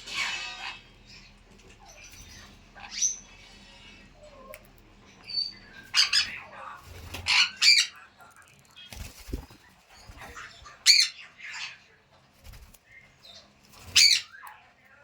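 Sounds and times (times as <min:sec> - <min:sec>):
parrot squawking: 0:00.0 - 0:04.5, 0:05.4 - 0:08.0, 0:10.2 - 0:11.9, 0:13.9 - 0:14.4.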